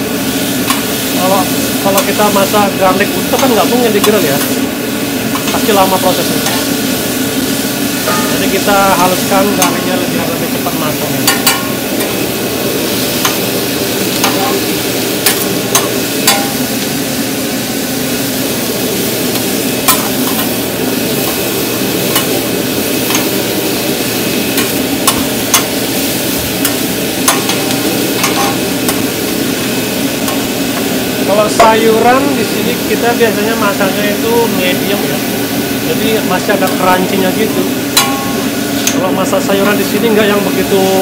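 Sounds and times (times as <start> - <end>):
meat sizzling on a grill: 0.0 - 41.0.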